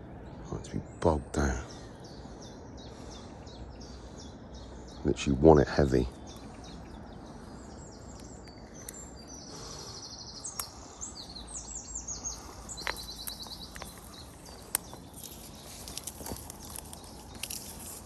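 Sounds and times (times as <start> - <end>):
low outdoor rumble: 0.0 - 18.0
songbirds singing and chirping: 0.0 - 18.0
bird trill: 6.1 - 18.0.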